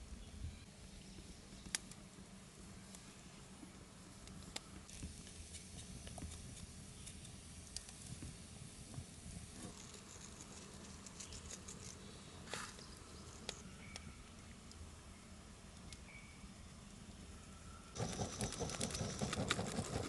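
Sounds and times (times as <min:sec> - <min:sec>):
steady low hum: 0:00.0 - 0:20.0
small clicks and crackles: 0:04.2 - 0:08.3, 0:09.6 - 0:14.8, 0:18.0 - 0:20.0.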